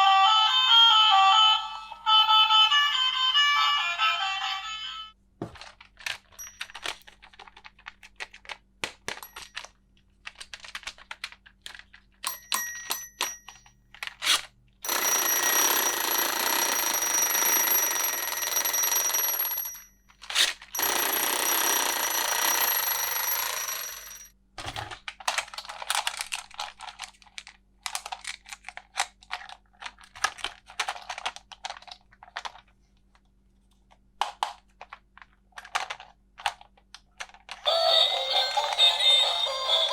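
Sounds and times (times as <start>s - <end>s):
plastic toy pieces clicking: 5.6s - 12.1s, 25.1s - 32.7s, 34.2s - 37.7s
toy ringing: 12.3s - 13.7s, 14.9s - 20.0s, 20.8s - 24.3s, 37.6s - 39.9s.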